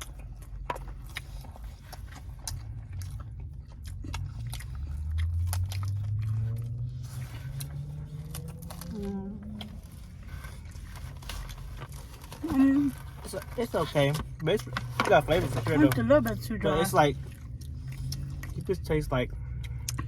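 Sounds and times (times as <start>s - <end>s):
person chewing food crunchily: 0.0s - 20.0s
low rumble rising in pitch: 2.5s - 10.8s.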